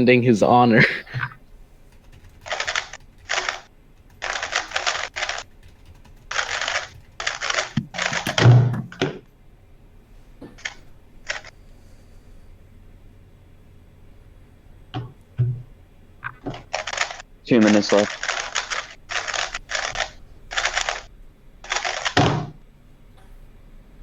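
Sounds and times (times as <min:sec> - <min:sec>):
puzzle cube clicking: 0:01.9 - 0:09.1, 0:16.2 - 0:22.5.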